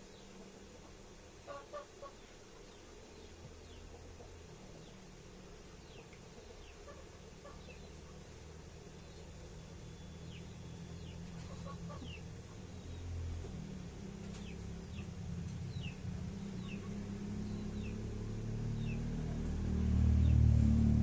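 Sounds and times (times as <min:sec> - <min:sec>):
chicks peeping: 0:05.8 - 0:08.2, 0:10.2 - 0:12.6, 0:14.2 - 0:18.0.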